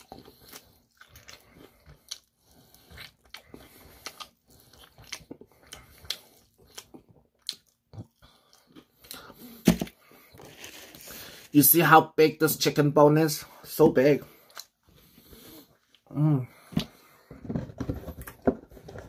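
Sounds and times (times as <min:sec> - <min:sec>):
biting and chewing fried chicken: 0:00.0 - 0:11.5.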